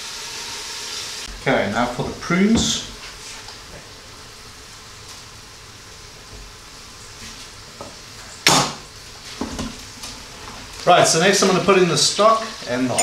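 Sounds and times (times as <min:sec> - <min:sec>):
food sizzling in oil: 0:00.0 - 0:01.3.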